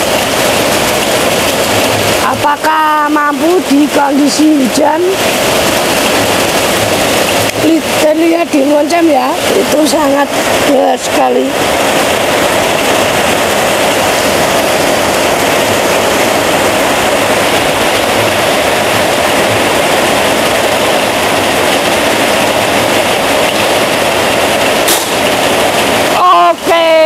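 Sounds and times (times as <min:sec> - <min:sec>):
heavy rain pouring: 0:00.0 - 0:27.0.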